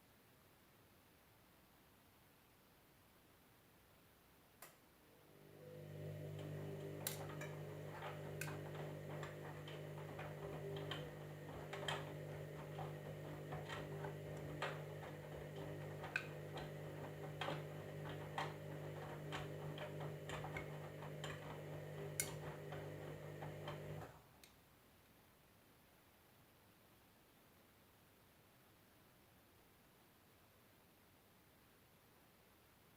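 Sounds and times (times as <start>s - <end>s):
washing machine humming: 5.1s - 24.2s.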